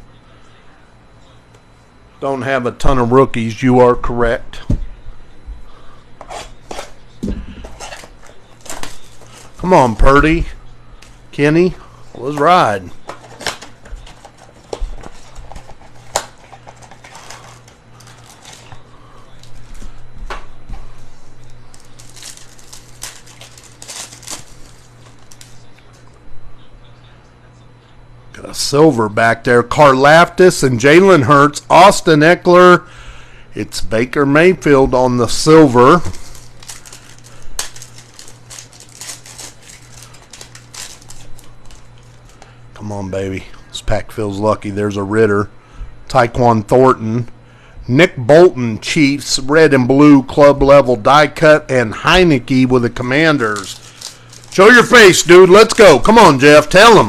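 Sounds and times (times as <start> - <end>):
steady low hum: 0.0 - 57.0
cards rustling and clicking: 6.2 - 10.0, 12.1 - 18.8, 21.7 - 26.0, 35.6 - 42.5, 53.4 - 57.0
foil wrappers crinkling and tearing: 7.6 - 10.4, 12.1 - 20.0, 21.4 - 25.9, 35.3 - 42.5, 52.9 - 57.0.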